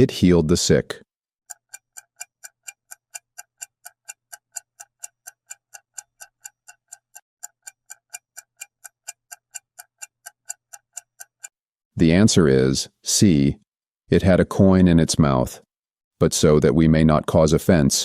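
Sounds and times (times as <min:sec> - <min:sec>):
clock ticking: 0:01.5 - 0:11.6.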